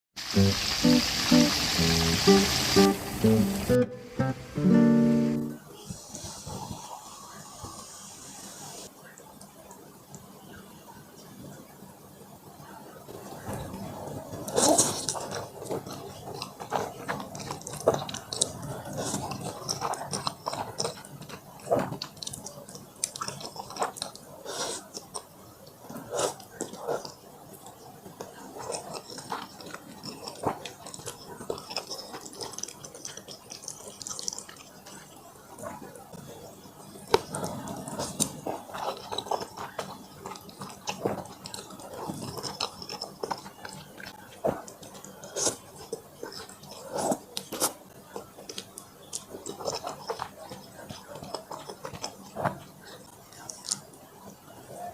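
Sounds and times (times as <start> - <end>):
person chewing crunchy food: 14.0 - 54.0.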